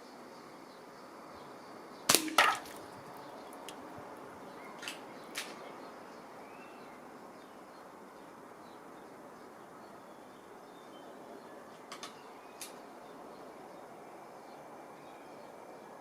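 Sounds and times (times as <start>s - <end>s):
air rifle crack: 2.1s - 2.9s
pellet hitting a can: 2.1s - 2.9s.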